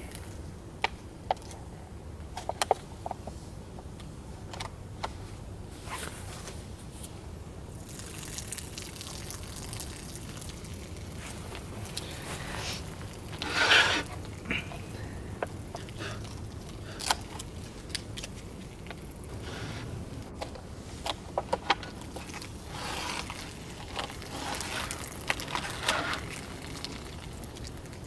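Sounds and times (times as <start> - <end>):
scrape or rustle: 5.7 - 7.2, 11.2 - 14.2, 19.4 - 20.0, 22.2 - 26.8.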